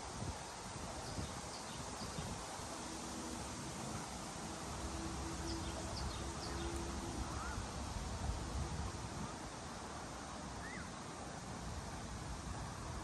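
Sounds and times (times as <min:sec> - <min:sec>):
wind buffeting microphone: 0:00.0 - 0:02.8, 0:05.1 - 0:09.7
faint steady hum: 0:00.0 - 0:13.0
wind through trees: 0:00.0 - 0:13.0.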